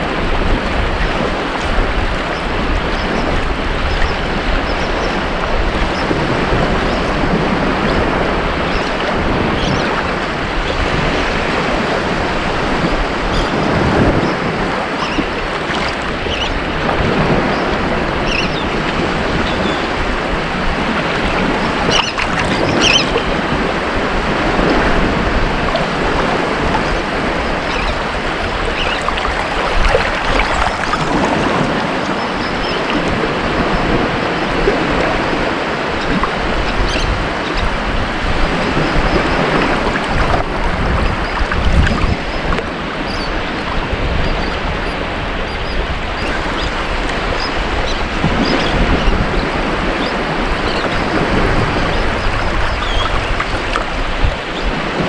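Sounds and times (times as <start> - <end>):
ocean waves surf hiss: 10.0 - 43.7, 44.6 - 55.0
small bright splashes: 14.4 - 16.6, 21.3 - 23.3, 25.6 - 32.8, 50.0 - 54.6.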